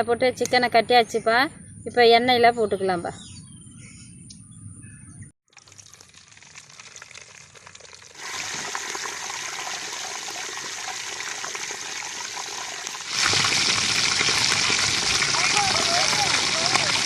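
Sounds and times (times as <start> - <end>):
chicken deep-frying in oil: 5.5 - 17.0.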